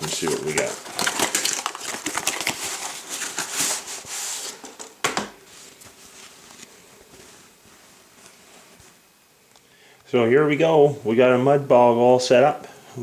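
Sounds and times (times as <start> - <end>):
packaging crinkling: 0.0 - 9.0.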